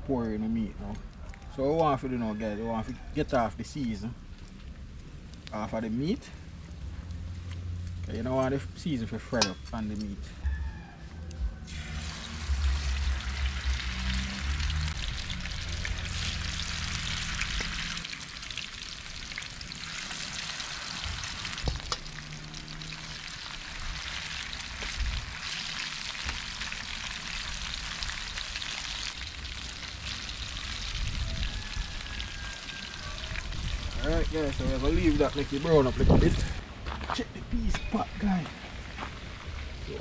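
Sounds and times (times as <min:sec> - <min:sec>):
meat sizzling in hot oil: 0:11.7 - 0:36.0.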